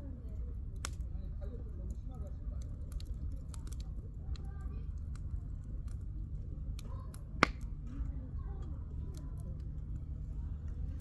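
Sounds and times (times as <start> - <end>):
campfire crackling and popping: 0.6 - 7.8.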